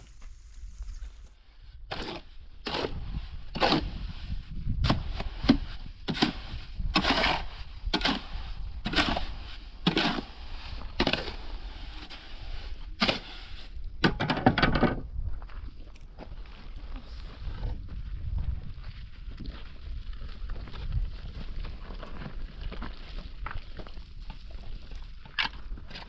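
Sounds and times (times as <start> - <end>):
footsteps crunching: 0.0 - 1.4, 15.2 - 24.7.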